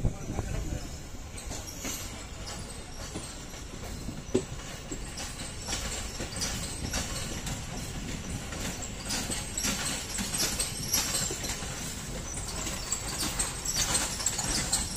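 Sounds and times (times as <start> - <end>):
train rumbling past: 0.0 - 14.9
wheels clacking over rail joints: 0.5 - 14.9.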